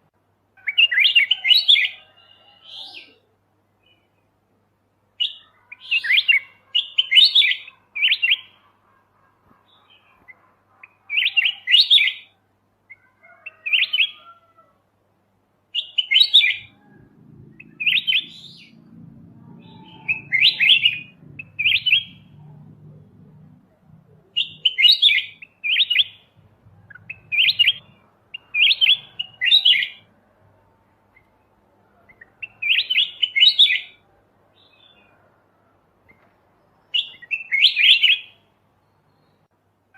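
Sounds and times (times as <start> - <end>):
bulbul chirping: 24.3 - 30.0.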